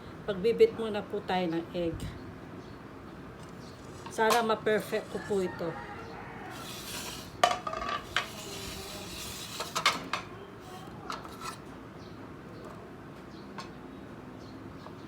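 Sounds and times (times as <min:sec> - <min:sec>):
utensils clinking against dishes: 0:03.8 - 0:11.7.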